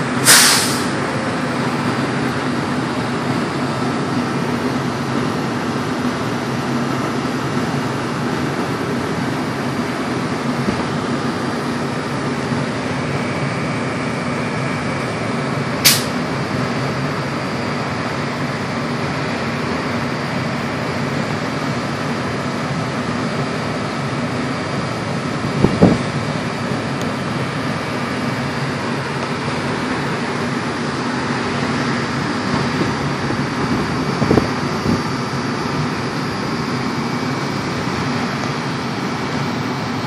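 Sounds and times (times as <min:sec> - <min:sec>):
sharp air hiss: 0:00.2 - 0:01.0, 0:15.8 - 0:16.2.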